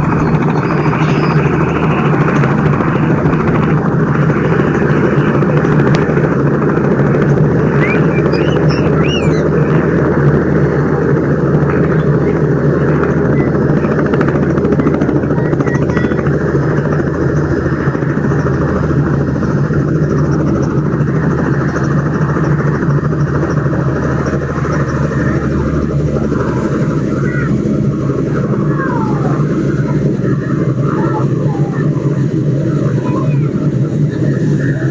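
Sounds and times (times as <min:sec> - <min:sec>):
loud engine drone: 0:00.0 - 0:34.9.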